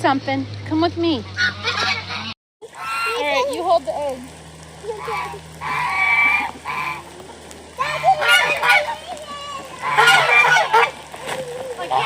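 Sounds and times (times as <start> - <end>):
geese honking: 1.3 - 3.4, 4.9 - 7.2, 7.8 - 12.0.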